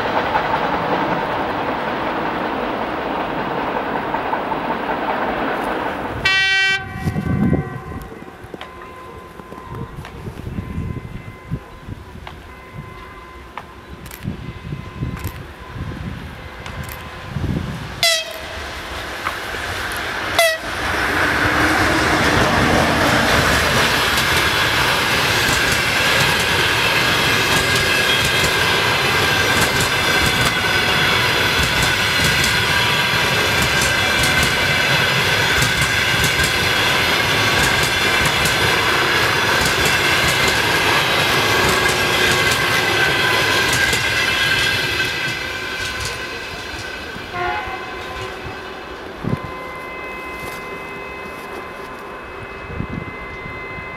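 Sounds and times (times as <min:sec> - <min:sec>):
freight train rumble and clatter: 0:00.0 - 0:53.9
high ringing tones: 0:20.3 - 0:53.9.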